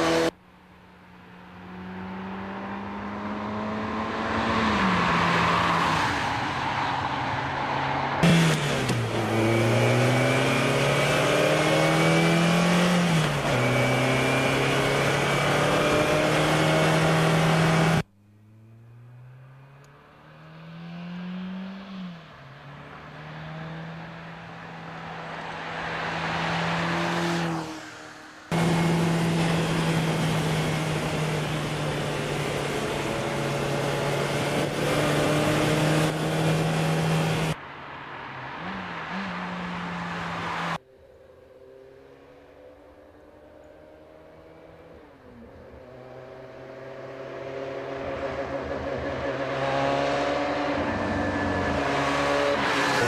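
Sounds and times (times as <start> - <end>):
car passing by: 1.5 - 13.8, 14.6 - 31.8, 35.0 - 40.8, 46.4 - 53.0
car engine pulling hard: 8.2 - 19.8, 28.5 - 37.6.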